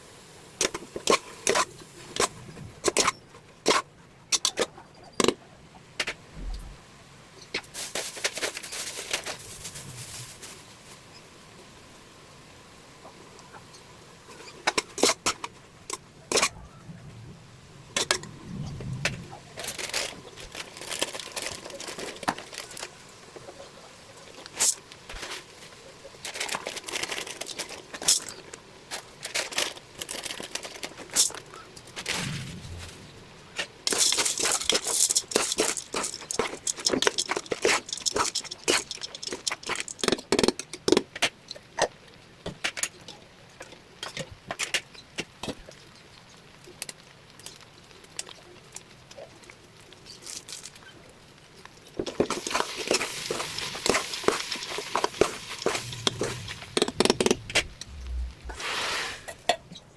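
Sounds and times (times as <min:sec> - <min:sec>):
packaging crinkling: 0:19.6 - 0:23.0, 0:26.2 - 0:31.4, 0:33.6 - 0:40.2, 0:51.9 - 0:58.1
utensils clicking and knocking: 0:33.9 - 0:41.0, 0:52.0 - 0:58.0.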